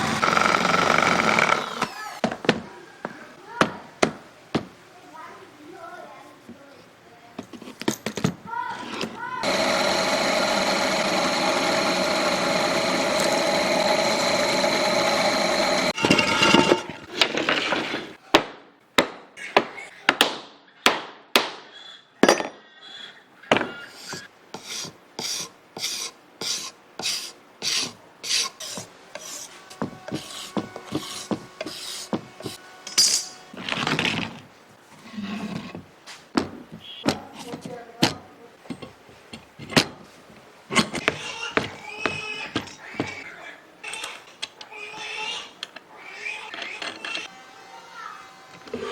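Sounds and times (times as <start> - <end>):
file rasping back and forth: 0.0 - 2.0, 9.4 - 16.8, 23.9 - 32.6
power tool running: 0.0 - 2.1, 9.4 - 17.0, 47.1 - 48.9.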